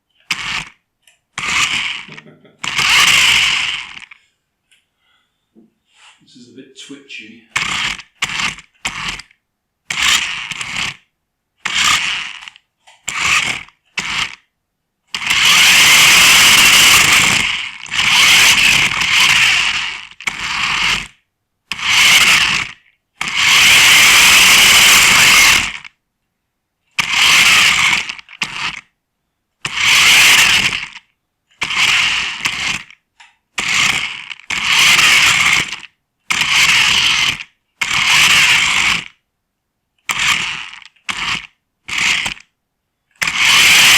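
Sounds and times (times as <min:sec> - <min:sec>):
rc car motors whirring: 0:00.2 - 0:00.8, 0:01.4 - 0:04.2, 0:07.5 - 0:14.5, 0:15.1 - 0:26.0, 0:26.9 - 0:28.9, 0:29.6 - 0:33.0, 0:33.6 - 0:39.2, 0:40.0 - 0:42.5, 0:43.2 - 0:43.9.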